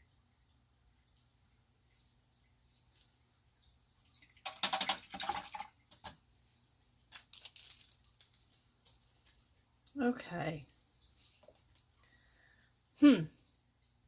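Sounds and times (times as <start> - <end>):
crinkling rattling handling noise: 7.1 - 9.5.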